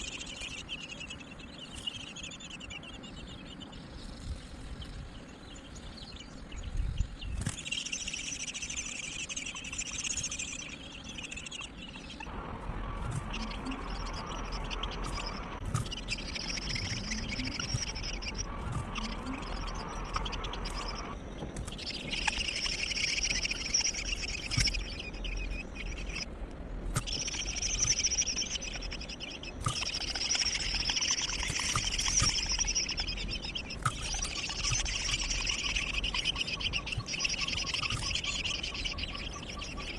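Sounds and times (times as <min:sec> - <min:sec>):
nestling birds begging chatter: 0:00.0 - 0:26.3, 0:27.0 - 0:39.9.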